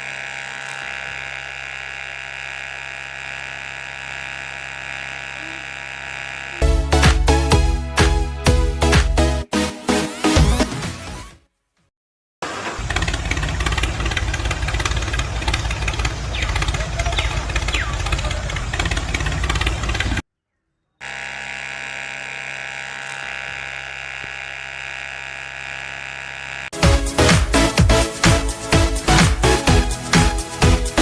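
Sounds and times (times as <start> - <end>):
engine running roughly: 0.0 - 6.8, 12.4 - 20.2, 21.0 - 31.0
engine idling hum: 12.5 - 20.2.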